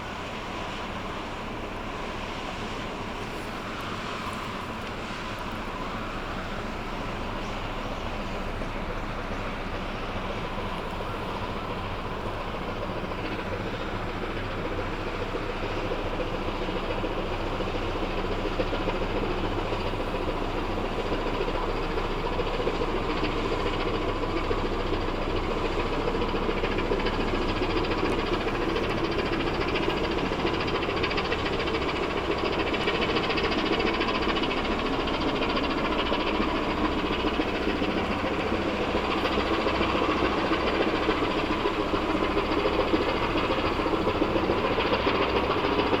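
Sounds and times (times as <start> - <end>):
ship diesel engine droning: 0.0 - 46.0.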